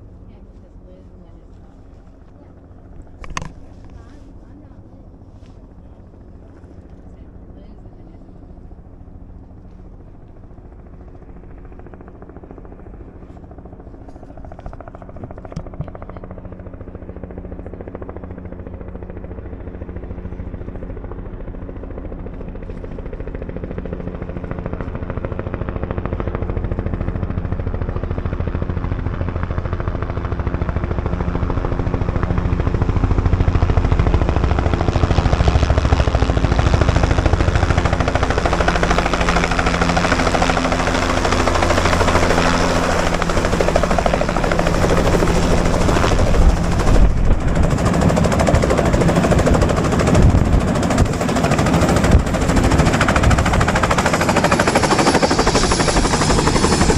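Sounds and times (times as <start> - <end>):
helicopter rotor chop: 0.0 - 56.9.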